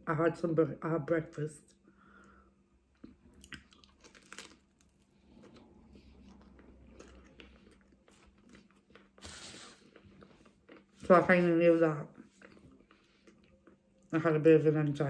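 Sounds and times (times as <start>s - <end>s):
faint close-up chewing: 2.9s - 11.1s, 12.1s - 14.1s
soft crunches and mouth clicks: 2.9s - 11.2s, 12.1s - 14.1s.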